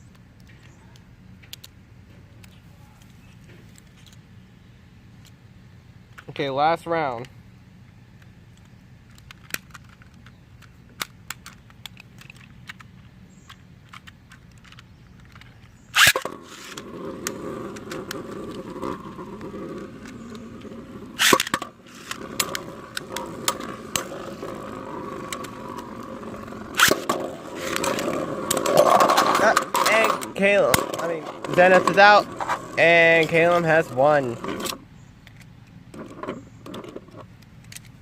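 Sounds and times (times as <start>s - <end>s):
small plastic clicks: 0.1s - 1.8s, 8.2s - 20.2s, 34.6s - 38.0s
spinning tops launched with rip: 15.9s - 18.2s, 21.2s - 24.4s, 26.6s - 31.7s
tops whirring on plastic: 15.9s - 34.8s.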